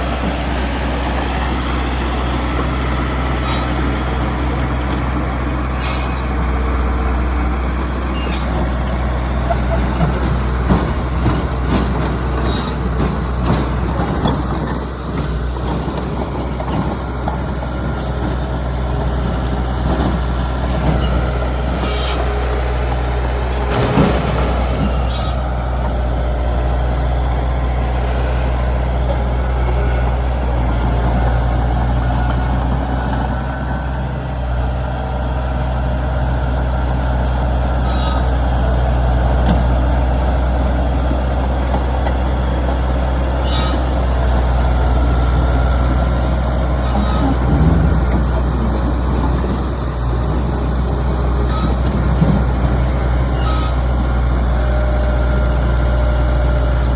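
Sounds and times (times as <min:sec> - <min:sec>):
diesel machinery running: 0:00.0 - 0:56.9
metallic clanks and knocks: 0:09.5 - 0:17.4.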